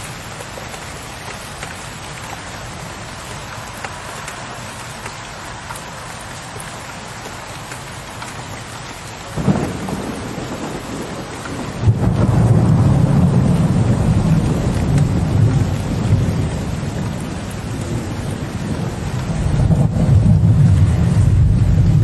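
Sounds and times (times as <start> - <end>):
steady rain: 0.0 - 22.0
rolling thunder rumble: 9.4 - 22.0
thunder clap: 9.4 - 22.0.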